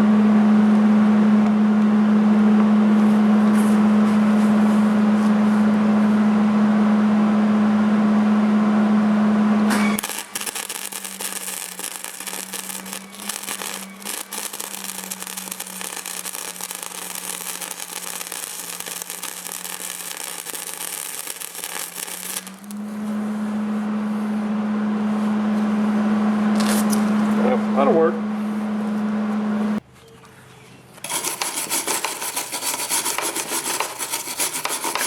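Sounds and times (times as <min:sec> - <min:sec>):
steady hum: 0:09.6 - 0:29.8
welder arc crackling: 0:09.7 - 0:23.6, 0:31.0 - 0:35.0.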